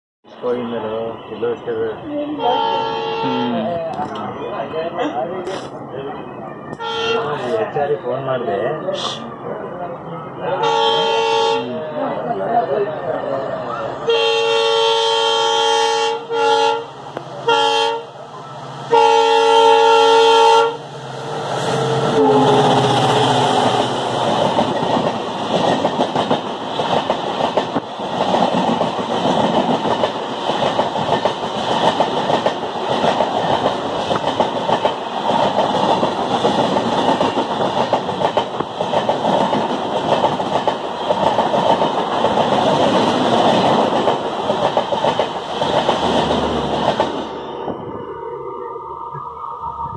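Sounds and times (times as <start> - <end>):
train horn blasts: 2.4 - 3.6, 6.8 - 7.4, 10.6 - 11.7, 14.0 - 18.2, 18.9 - 20.8, 22.0 - 23.0
train rumble passing: 9.3 - 49.9.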